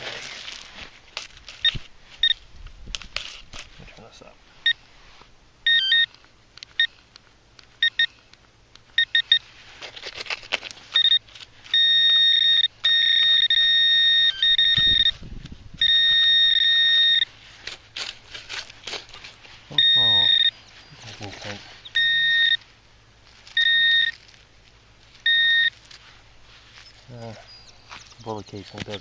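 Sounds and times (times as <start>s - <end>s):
digging in soil: 0.0s - 4.3s, 9.3s - 11.8s, 17.2s - 22.6s
metal detector beeping: 1.5s - 2.4s, 5.6s - 7.0s, 7.8s - 8.2s, 8.9s - 9.5s, 10.9s - 17.4s, 19.7s - 22.7s, 23.5s - 24.2s, 25.2s - 25.8s
metal detector steady tone: 5.6s - 7.0s, 7.8s - 8.2s, 8.9s - 9.6s, 10.9s - 18.6s, 19.2s - 24.3s, 25.0s - 27.0s.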